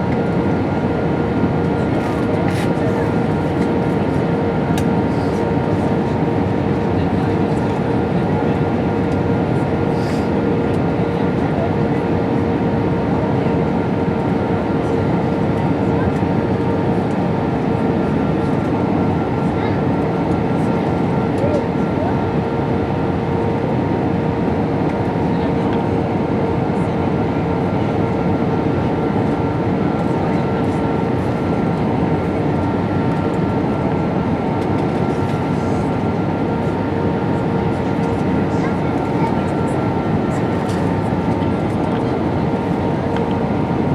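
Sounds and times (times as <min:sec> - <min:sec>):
airflow rushing in aircraft cabin: 0:00.0 - 0:43.9
jet engine drone: 0:19.8 - 0:43.9.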